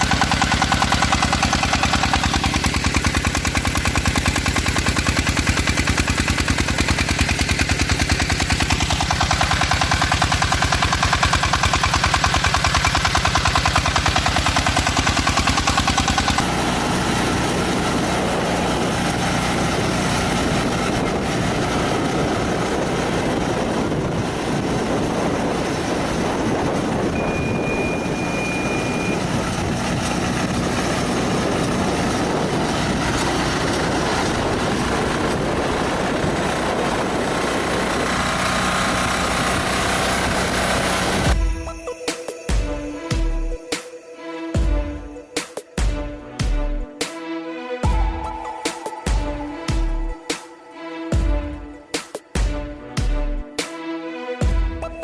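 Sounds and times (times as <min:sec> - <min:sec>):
diesel engine chugging: 0:00.0 - 0:41.9, 0:47.8 - 0:50.3
smoother engine running: 0:00.0 - 0:43.8, 0:44.6 - 0:55.0
short high tone: 0:27.1 - 0:29.4.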